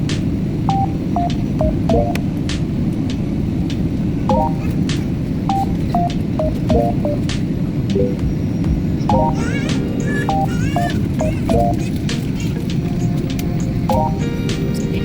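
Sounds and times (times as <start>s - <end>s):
simple tune of short notes: 0.7s - 2.3s, 4.3s - 4.7s, 5.5s - 7.3s, 9.1s - 10.5s.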